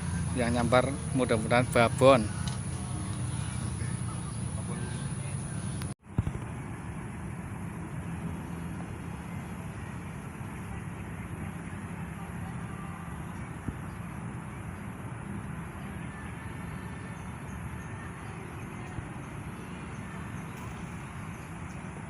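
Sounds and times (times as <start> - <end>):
distant traffic rumble: 0.0 - 22.0.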